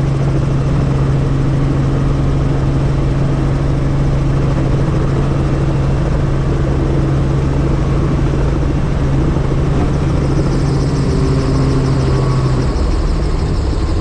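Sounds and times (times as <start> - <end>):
helicopter engine and rotor drone: 0.0 - 14.0.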